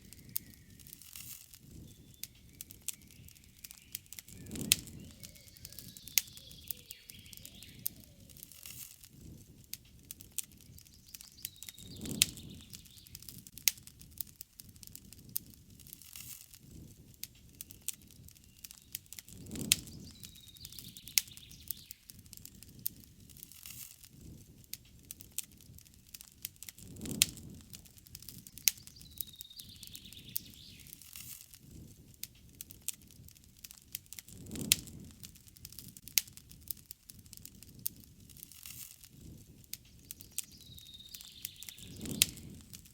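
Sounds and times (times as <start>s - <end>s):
campfire crackling and popping: 0.0s - 42.9s
low flame rumble: 0.0s - 42.9s
faint bird call: 1.7s - 8.8s.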